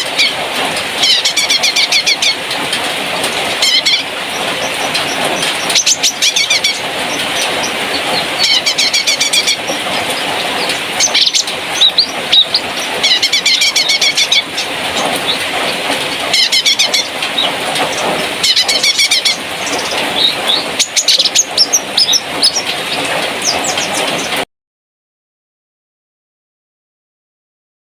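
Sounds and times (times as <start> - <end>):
songbird chattering: 3.3 - 24.4.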